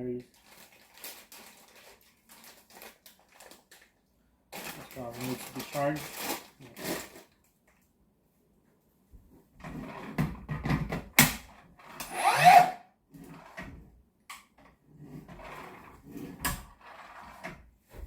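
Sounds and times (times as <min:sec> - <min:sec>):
hard plastic parts scraping: 0:04.5 - 0:07.4.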